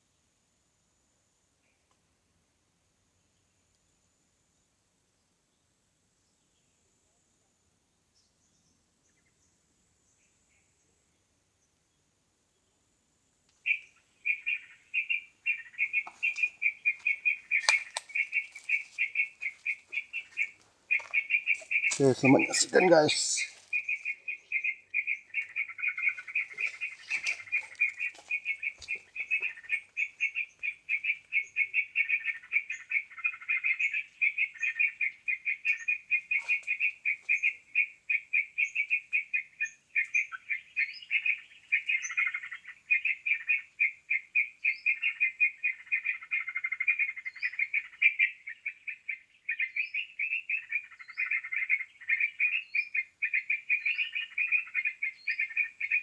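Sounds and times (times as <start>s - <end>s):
bird rapid chattering calls: 13.6s - 56.0s
high bird chirps: 13.6s - 56.0s.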